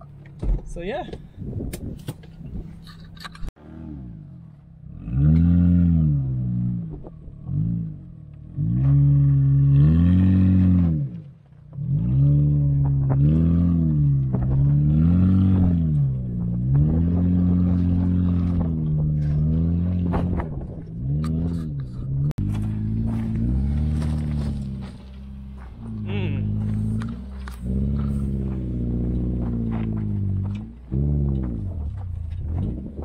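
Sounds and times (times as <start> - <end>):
sharp clicks and crunches: 1.1 - 3.6, 15.6 - 33.0
car engine revving: 1.1 - 33.0.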